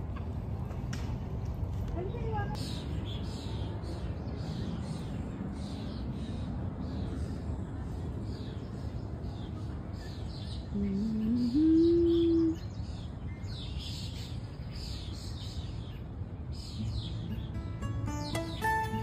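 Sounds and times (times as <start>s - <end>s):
low outdoor rumble: 0.0s - 10.0s
small birds chirping: 2.0s - 19.0s.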